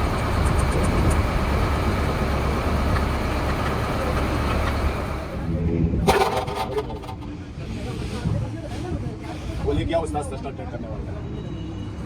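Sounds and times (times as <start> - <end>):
large vehicle engine idling: 0.0 - 8.0.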